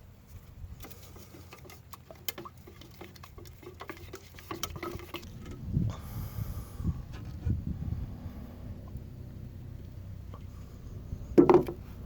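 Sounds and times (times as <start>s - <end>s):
low rumble: 5.2s - 12.0s.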